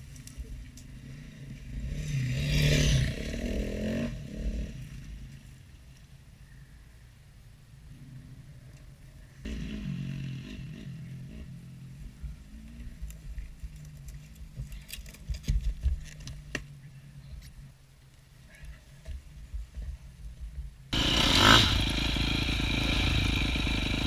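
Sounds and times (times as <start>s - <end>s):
dirt bike engine idling and revving: 0.6s - 5.4s, 9.4s - 14.3s, 20.9s - 24.0s
sharp knocks and clattering thumps: 13.2s - 16.7s.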